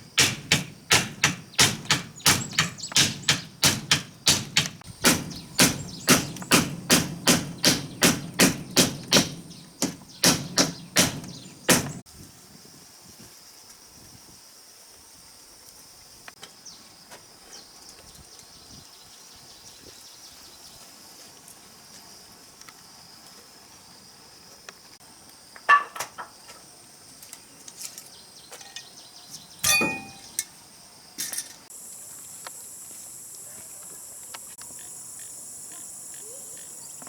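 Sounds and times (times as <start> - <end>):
high-pitched insect chorus: 26.3 - 37.0
sharp knocks and clinks: 29.6 - 30.6.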